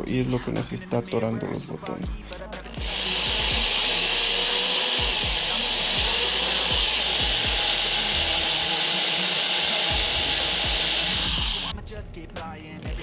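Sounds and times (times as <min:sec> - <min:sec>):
power drill boring into plastic: 0:02.8 - 0:11.7.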